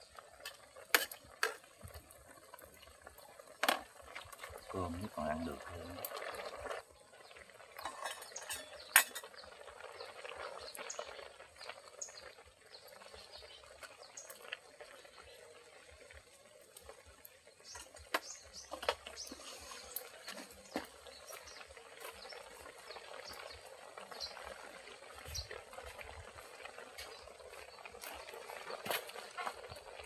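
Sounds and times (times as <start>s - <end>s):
dishes and utensils clinking: 7.8s - 9.3s.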